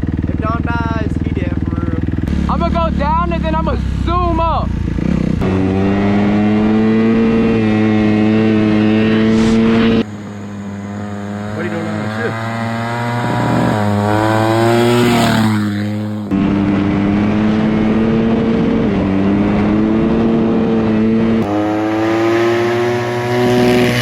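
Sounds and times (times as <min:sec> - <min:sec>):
off-road vehicle engine accelerating: 0:00.0 - 0:24.0.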